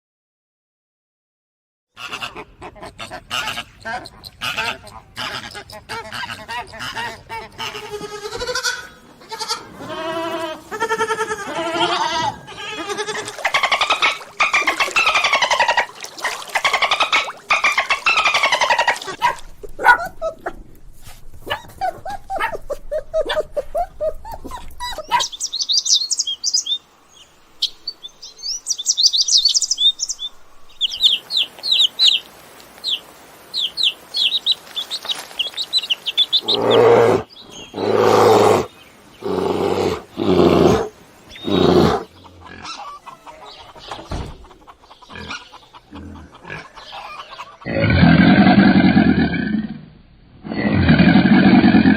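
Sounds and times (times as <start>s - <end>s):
pitched animal calls: 2.0s - 20.8s, 21.4s - 25.4s, 35.1s - 49.6s
loud low animal calls: 5.5s - 25.4s, 36.3s - 43.5s
high bird chirps: 23.2s - 32.2s.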